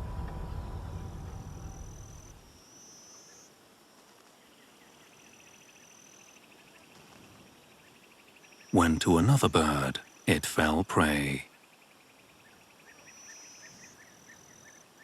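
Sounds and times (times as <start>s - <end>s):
low rumble: 0.0s - 2.5s.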